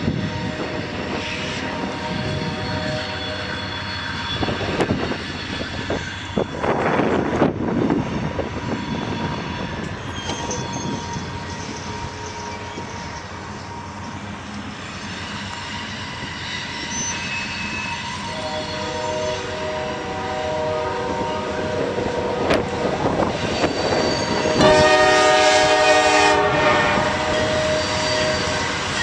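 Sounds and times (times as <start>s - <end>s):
train horn: 0.0s - 5.0s, 15.5s - 29.0s
locomotive rumble and rail noise: 0.0s - 29.0s.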